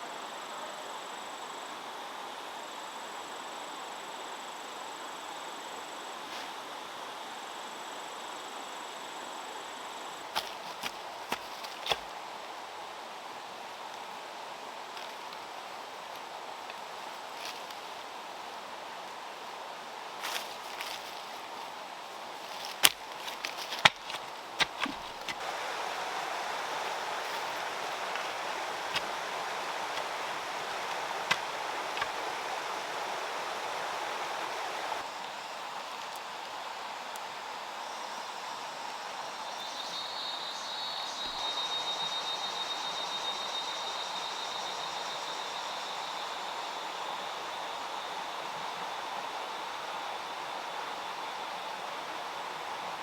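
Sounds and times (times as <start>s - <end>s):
rushing background noise: 20.2s - 35.1s
insect trilling: 22.3s - 35.9s
water running: 22.5s - 35.0s.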